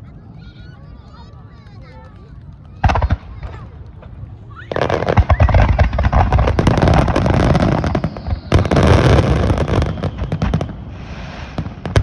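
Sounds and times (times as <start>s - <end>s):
firework crackle: 2.2s - 12.0s
firework booms: 2.8s - 12.0s.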